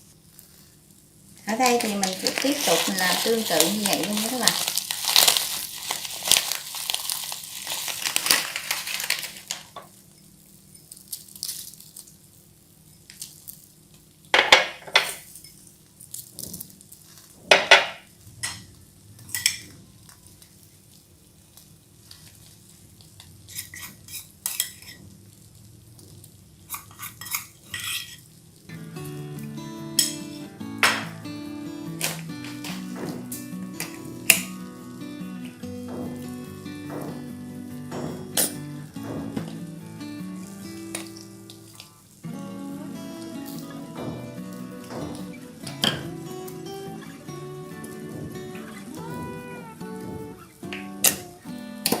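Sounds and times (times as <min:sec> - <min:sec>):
frying hiss: 0:00.0 - 0:52.0
utensils clinking on pan and dishes: 0:01.5 - 0:12.0, 0:14.4 - 0:15.7, 0:17.5 - 0:19.8, 0:23.2 - 0:25.1, 0:26.7 - 0:28.3, 0:30.0 - 0:31.2, 0:31.9 - 0:42.0, 0:43.2 - 0:49.4.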